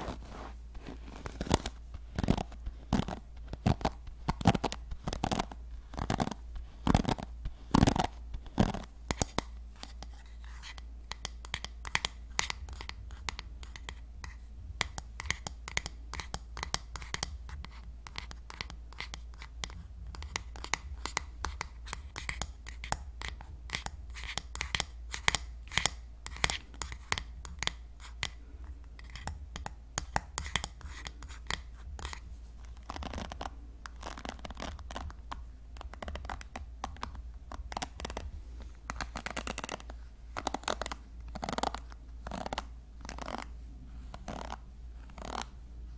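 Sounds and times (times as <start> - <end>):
hairbrush bristles scratching: 0.0 - 8.9.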